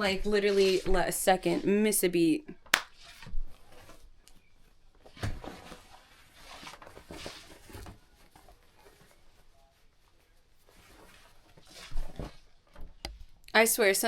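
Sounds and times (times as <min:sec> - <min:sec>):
cloth rustling: 0:02.6 - 0:13.4.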